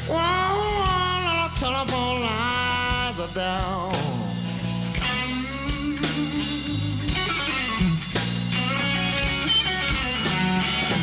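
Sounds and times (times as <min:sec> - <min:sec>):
person singing: 0:00.0 - 0:04.4
bass guitar: 0:00.0 - 0:11.0
drum kit slow beat: 0:00.0 - 0:11.0
electric guitar bent notes: 0:05.0 - 0:11.0.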